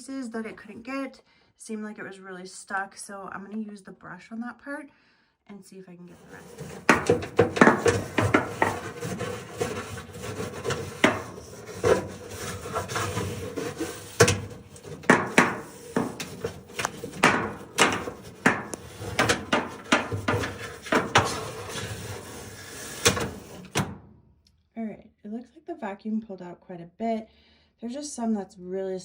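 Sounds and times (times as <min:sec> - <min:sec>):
brush scrubbing inside dryer lint slot: 0:06.1 - 0:24.0.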